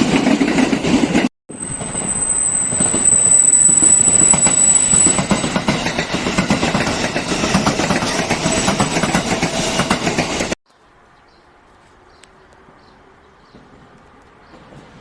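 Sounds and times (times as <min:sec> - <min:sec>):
train wheels clattering: 0:04.2 - 0:10.6.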